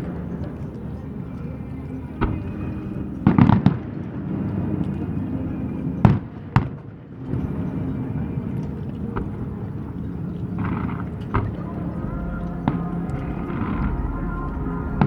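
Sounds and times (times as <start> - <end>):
steady low rumble: 7.5 - 15.0
fireworks exploding: 10.7 - 15.0.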